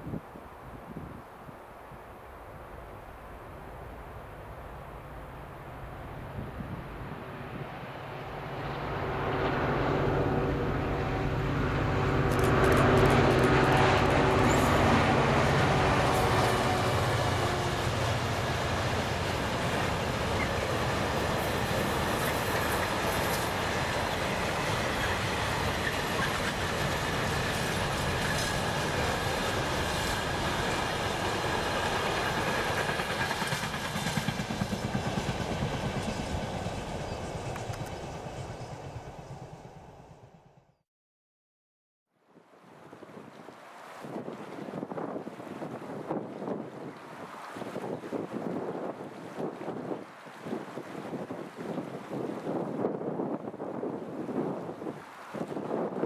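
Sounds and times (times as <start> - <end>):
diesel locomotive engine: 4.9 - 40.8
wagons rolling over rails: 12.1 - 17.2.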